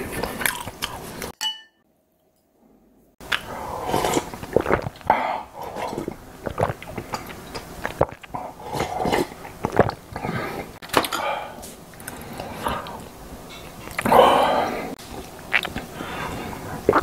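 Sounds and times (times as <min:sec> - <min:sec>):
man slurping and gulping: 0:03.2 - 0:10.8, 0:13.8 - 0:17.0
wet mouth clicks: 0:15.2 - 0:15.9.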